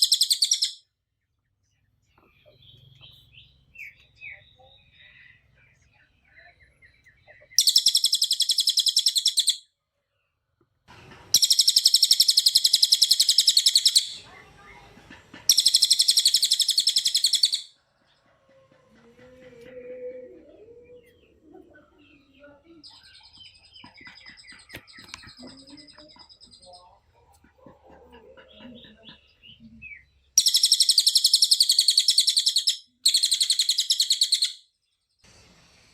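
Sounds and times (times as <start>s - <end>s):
bird singing fast trills: 0.0s - 0.8s, 2.4s - 9.7s, 11.3s - 14.3s, 15.5s - 17.8s, 29.2s - 35.2s.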